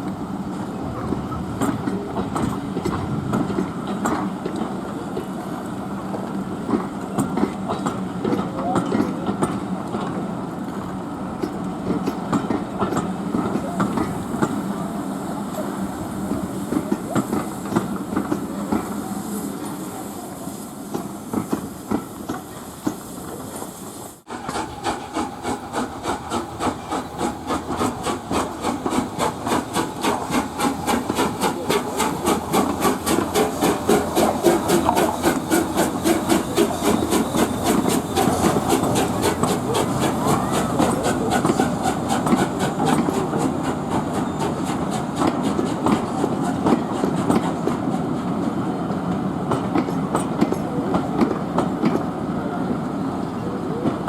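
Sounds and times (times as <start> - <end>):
steam hiss: 0.0 - 54.0
steam train running: 0.0 - 54.0
rhythmic train beat: 24.2 - 52.1.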